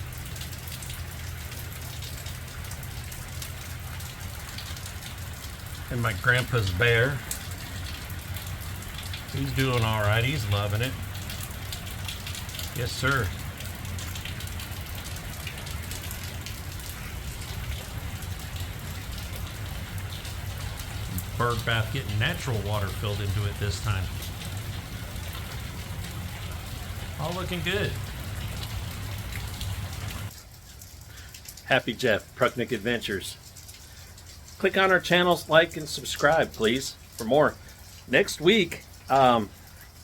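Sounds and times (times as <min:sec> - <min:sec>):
drops ticking: 0:00.0 - 0:40.0
steady rain falling: 0:00.0 - 0:40.0.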